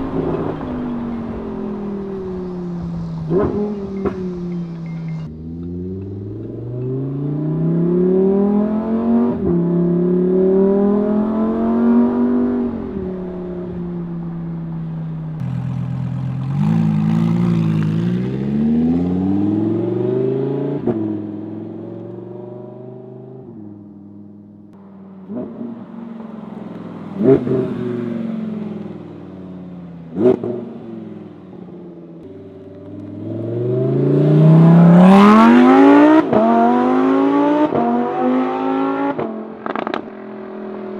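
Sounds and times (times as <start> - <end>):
sports car engine accelerating: 0.0 - 40.9
exhaust cracks: 11.5 - 18.4.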